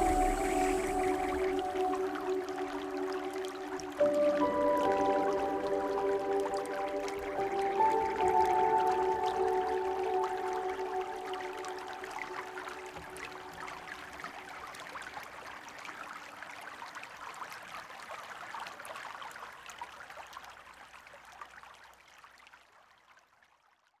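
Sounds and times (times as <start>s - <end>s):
river water babbling: 0.0s - 15.8s.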